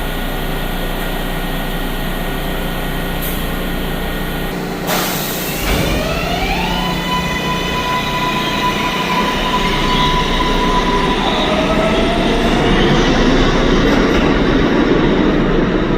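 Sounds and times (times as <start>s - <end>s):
subway train motor whining: 0.0s - 15.9s
steel wheels rumbling on rails: 4.5s - 15.9s.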